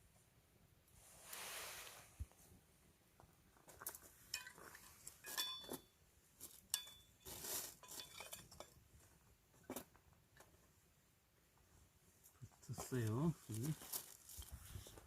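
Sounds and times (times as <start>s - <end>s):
metallic clinks of dishes: 4.3s - 5.8s, 6.7s - 7.1s.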